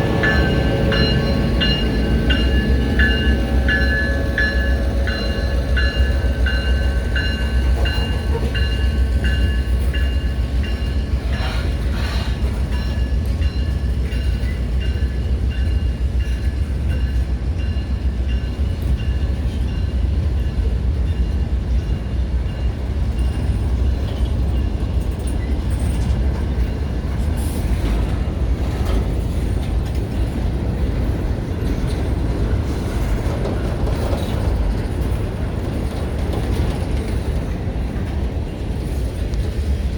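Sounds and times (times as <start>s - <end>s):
train rumbling by: 0.0s - 39.9s.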